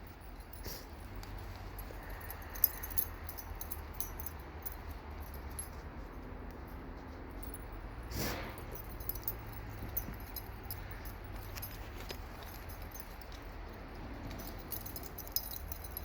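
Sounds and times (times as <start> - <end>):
dog collar tags jingling: 0.0 - 16.0.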